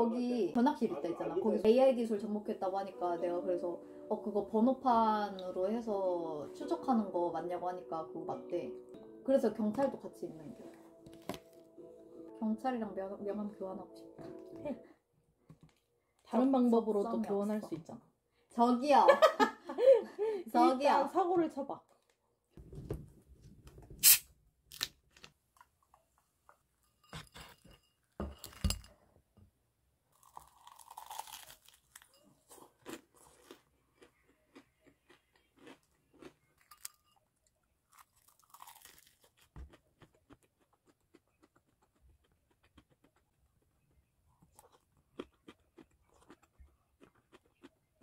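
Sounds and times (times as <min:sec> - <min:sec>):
crunching fried chicken: 0:30.1 - 0:37.2, 0:37.8 - 0:48.0.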